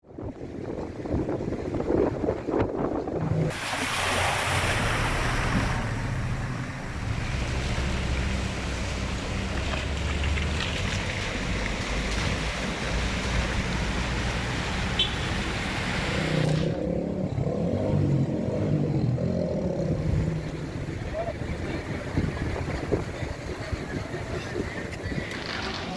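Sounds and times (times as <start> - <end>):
wind buffeting microphone: 0.0 - 3.9, 16.5 - 25.9
surf rushing: 0.8 - 19.0, 19.8 - 25.9.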